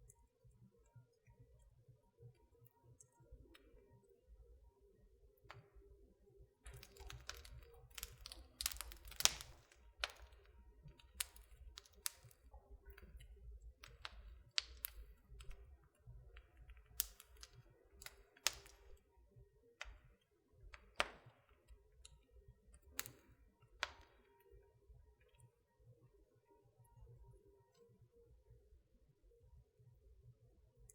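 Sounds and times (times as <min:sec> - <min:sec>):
wood fire crackling and popping: 0:06.7 - 0:19.1, 0:19.8 - 0:22.2, 0:22.8 - 0:24.3.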